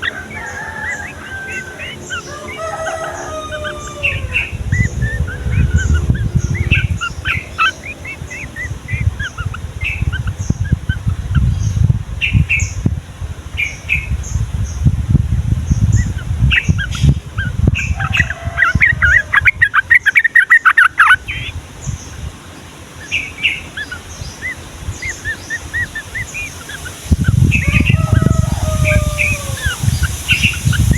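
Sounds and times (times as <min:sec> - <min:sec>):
bulbuls chirping: 0:00.0 - 0:13.0, 0:13.6 - 0:30.9
low rumbling thumps: 0:04.0 - 0:13.3.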